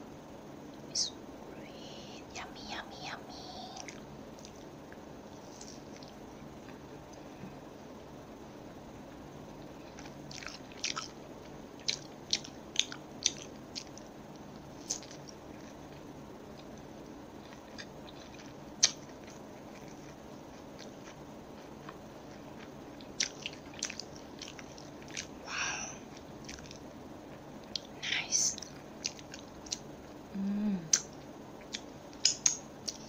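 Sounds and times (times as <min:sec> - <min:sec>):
crunchy chewing: 0:03.7 - 0:07.3, 0:09.6 - 0:30.0.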